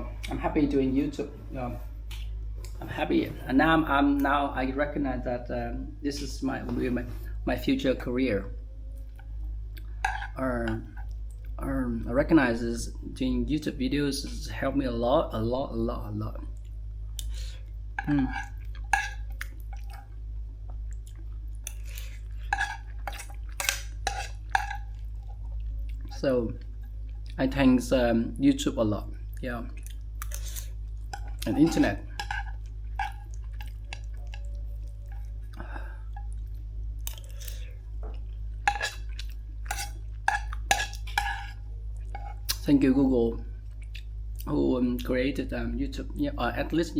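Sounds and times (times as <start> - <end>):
steady low hum: 0.0 - 46.9
person chewing food: 16.6 - 27.4, 29.3 - 42.6.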